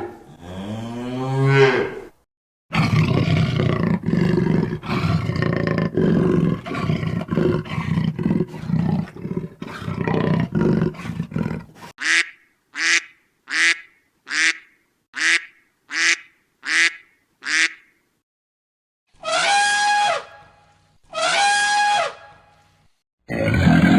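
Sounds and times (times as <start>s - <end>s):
big cat roaring and growling: 2.7s - 11.9s, 23.3s - 23.9s
duck quacking: 12.0s - 17.9s.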